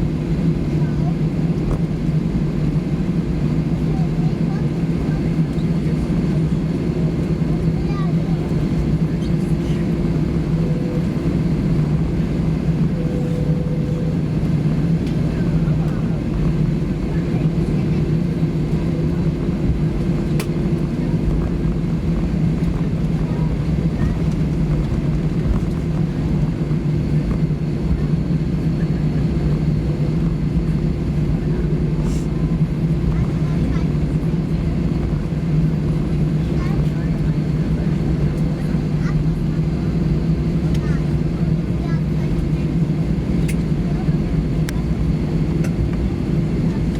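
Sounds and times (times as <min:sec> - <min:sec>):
aircraft cabin engine drone: 0:00.0 - 0:46.9
faint high tone: 0:10.6 - 0:11.3, 0:12.8 - 0:14.4.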